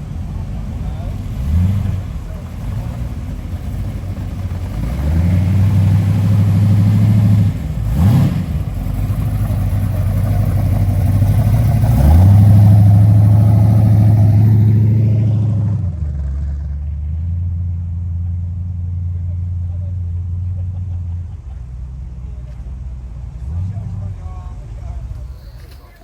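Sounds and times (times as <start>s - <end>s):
car engine revving: 0.0s - 18.5s.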